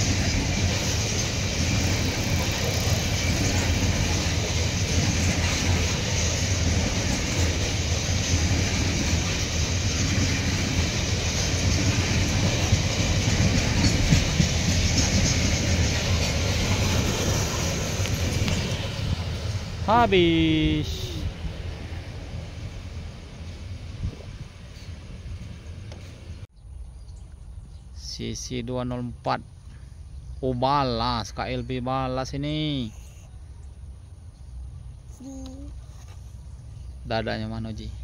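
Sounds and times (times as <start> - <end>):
steel wheels rumbling on rails: 0.0 - 26.5.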